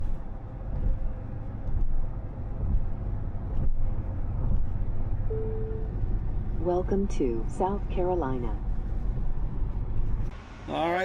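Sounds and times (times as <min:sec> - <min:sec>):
car driving rumble: 0:00.0 - 0:11.0
short steady tone: 0:05.3 - 0:06.0.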